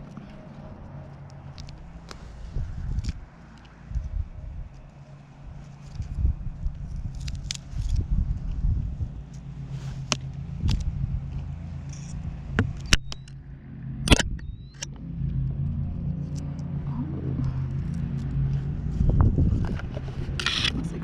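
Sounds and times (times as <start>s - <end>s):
car engine humming: 0.0s - 21.0s
sharp clicks and knocks: 10.1s - 13.4s, 14.1s - 15.4s.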